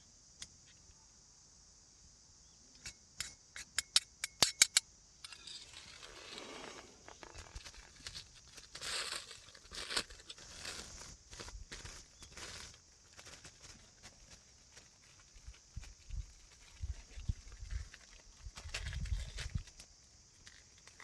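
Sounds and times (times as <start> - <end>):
plastic packaging crinkling and tearing: 7.0 - 15.6.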